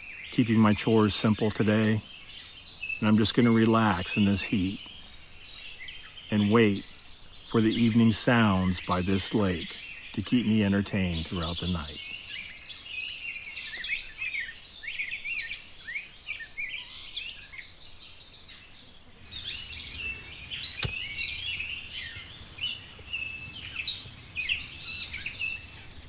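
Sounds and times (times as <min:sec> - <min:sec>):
birds singing and chirping: 0:00.0 - 0:26.0
sharp click: 0:20.0 - 0:21.3.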